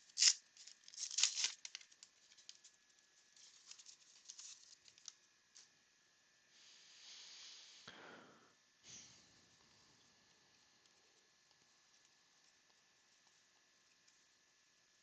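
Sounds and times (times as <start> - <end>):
card pack tearing open: 0.0 - 2.6
cards rustling: 0.0 - 5.2.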